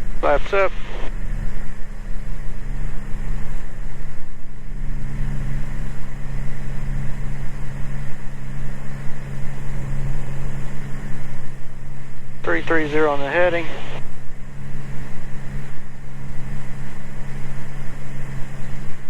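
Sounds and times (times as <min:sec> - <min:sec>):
propeller plane engine droning: 0:00.0 - 0:19.0.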